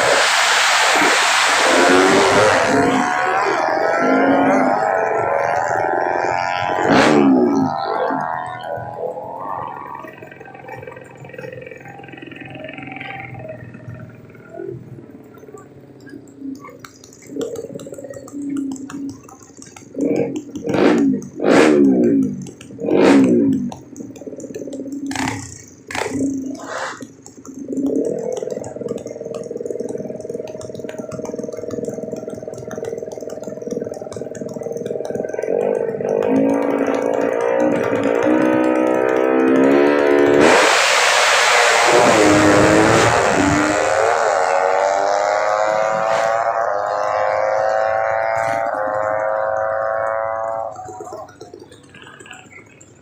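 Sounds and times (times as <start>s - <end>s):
drag bike engines revving: 0.0s - 53.0s
engine hum: 0.0s - 53.0s
sharp clicks: 15.4s - 44.0s.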